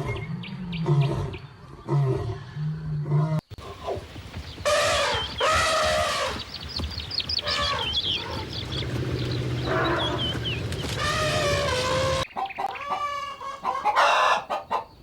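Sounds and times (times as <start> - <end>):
chickens calling: 3.6 - 15.0.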